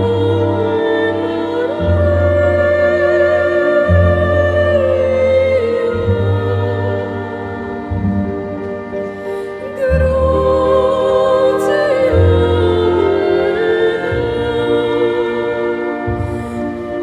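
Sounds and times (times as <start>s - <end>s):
operatic singing with vibrato: 0.0s - 8.6s, 9.2s - 17.0s
instrumental accompaniment: 0.0s - 17.0s.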